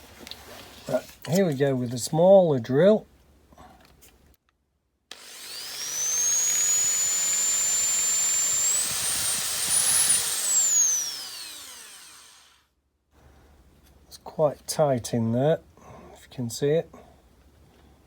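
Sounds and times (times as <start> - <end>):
small electric drill whining: 5.1 - 12.7.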